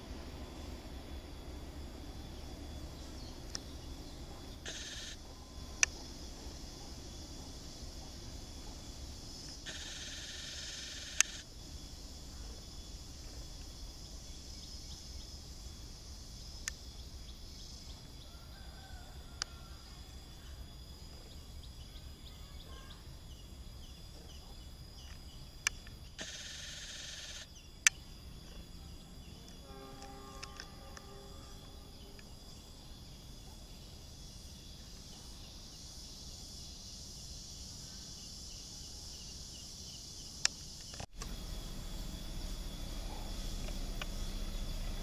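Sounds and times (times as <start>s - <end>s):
insects chirping: 0.0s - 45.0s
short calls: 3.5s - 8.7s
sharp clicks: 9.4s - 11.5s, 25.1s - 28.0s.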